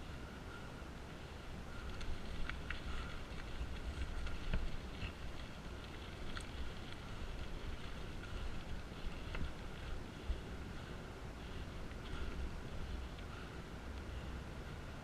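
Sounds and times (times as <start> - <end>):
road noise: 0.0 - 15.0
wind rumbling on microphone: 0.0 - 15.0
bike clicks and rattles: 1.7 - 13.6.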